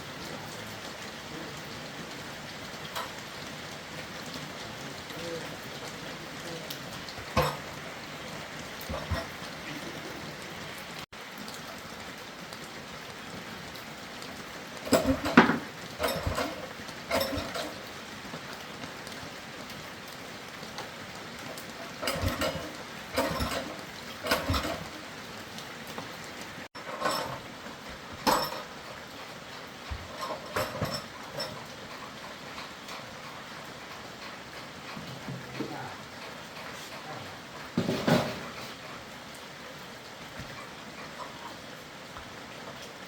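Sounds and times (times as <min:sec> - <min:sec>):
metal tools clinking: 0:07.2 - 0:07.9, 0:08.8 - 0:10.0, 0:14.9 - 0:17.9, 0:21.8 - 0:25.0, 0:26.7 - 0:29.0, 0:29.8 - 0:33.0.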